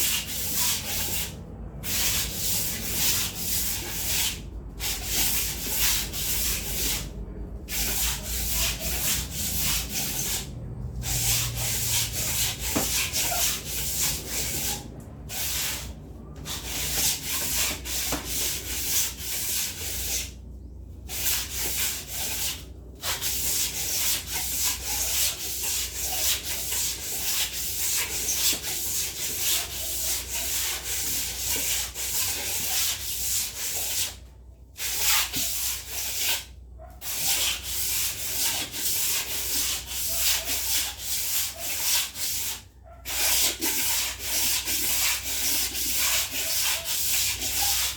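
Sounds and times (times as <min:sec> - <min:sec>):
brush scrubbing a surface: 0:00.0 - 0:20.4, 0:21.1 - 0:34.2, 0:34.8 - 0:47.9.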